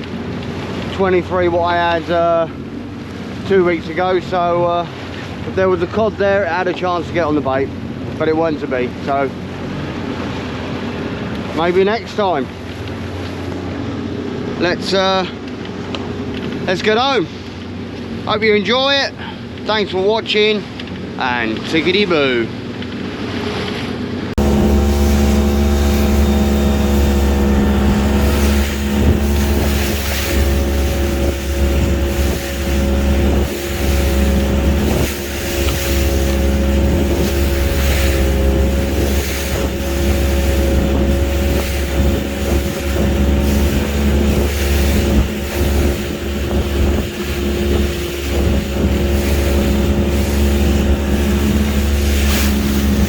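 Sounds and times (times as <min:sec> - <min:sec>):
boat engine running: 0:00.0 - 0:53.0
water noise: 0:00.0 - 0:53.0
wind noise: 0:24.4 - 0:53.0.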